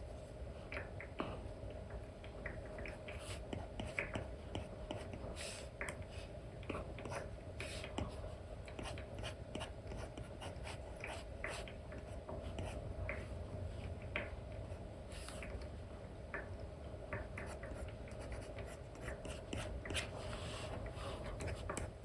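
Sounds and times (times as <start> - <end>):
steady low hum: 0.0 - 22.0
stylus scratching and tapping on screen: 2.4 - 6.1, 17.1 - 21.9.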